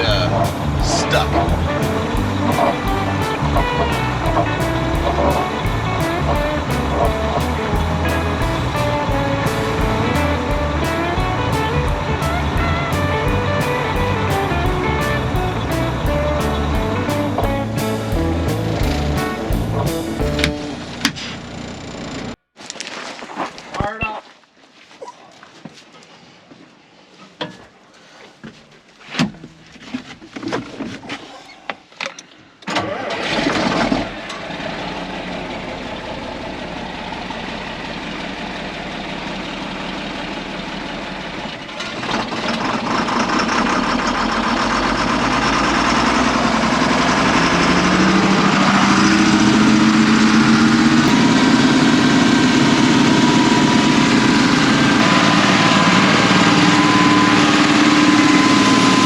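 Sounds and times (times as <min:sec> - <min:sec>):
engine running and revving: 0:00.0 - 0:21.0, 0:42.0 - 0:59.0
engine cranking and starting: 0:32.6 - 0:36.8, 0:39.2 - 0:59.0.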